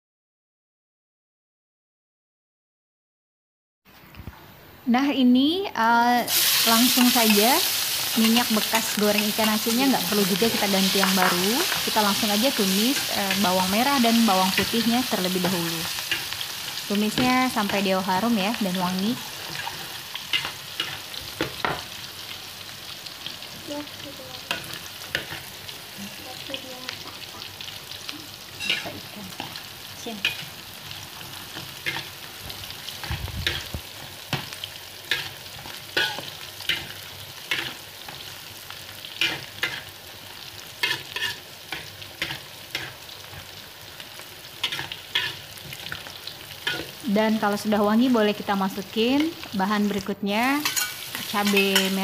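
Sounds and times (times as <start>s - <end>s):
shallots sizzling in hot oil: 5.4s - 52.0s
metal spatula scraping a wok: 28.6s - 29.6s, 35.1s - 38.2s, 39.2s - 39.9s, 40.8s - 43.4s, 44.6s - 45.9s, 50.6s - 52.0s.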